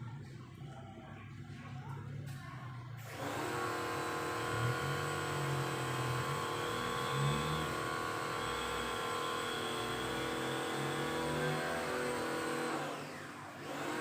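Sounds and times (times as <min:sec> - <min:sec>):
motor droning hum: 0:03.1 - 0:13.8.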